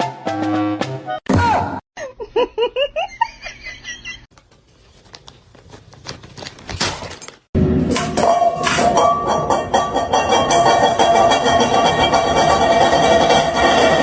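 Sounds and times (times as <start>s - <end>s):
person giggling: 2.0s - 4.2s.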